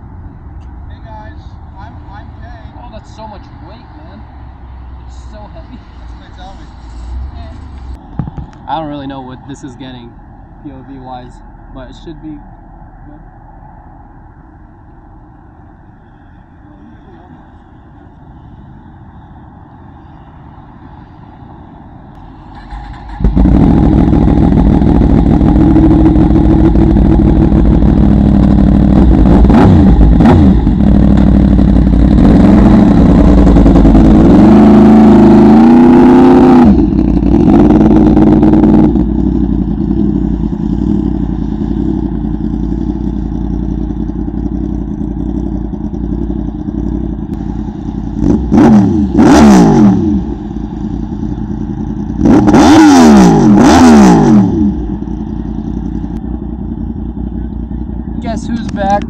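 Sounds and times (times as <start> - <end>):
motorcycle engine accelerating: 22.2 - 59.0.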